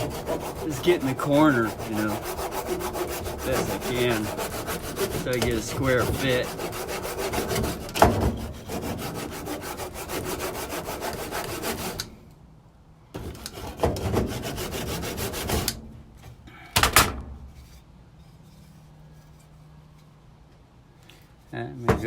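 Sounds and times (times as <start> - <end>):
hand tool scraping wood: 0.0 - 12.1, 13.2 - 15.8.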